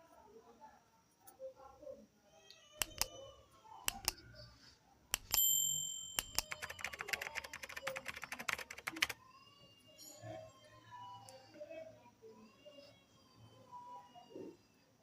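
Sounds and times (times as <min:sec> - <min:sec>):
sharp clicks: 0:02.8 - 0:03.1, 0:03.9 - 0:04.2, 0:05.1 - 0:05.4, 0:06.2 - 0:09.2.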